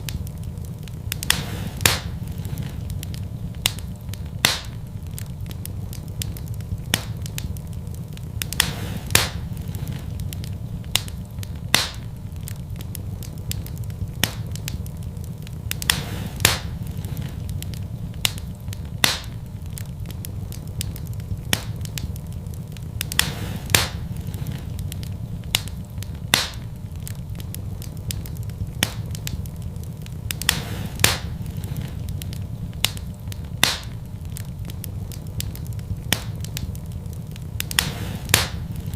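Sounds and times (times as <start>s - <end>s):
fire crackling and popping: 0.0s - 38.9s
low fire rumble: 0.0s - 38.9s.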